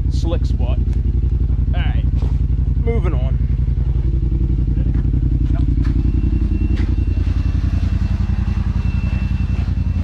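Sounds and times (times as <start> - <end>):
utility vehicle engine at low revs: 0.0 - 10.0
faint high whine: 4.1 - 10.0.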